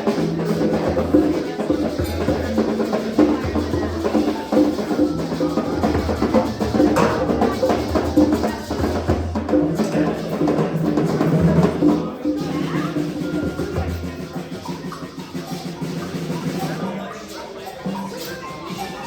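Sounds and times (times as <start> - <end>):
percussion instruments played: 0.0 - 19.0.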